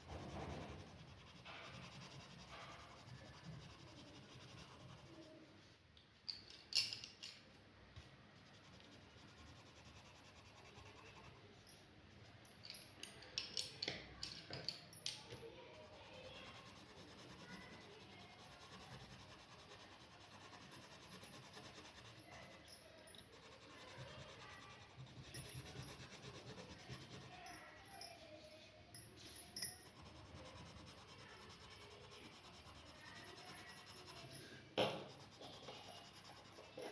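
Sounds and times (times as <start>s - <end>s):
drawing tool scratching paper: 0.0s - 5.3s, 8.4s - 11.5s, 15.6s - 22.6s, 23.3s - 27.4s, 29.9s - 34.3s, 35.0s - 36.9s.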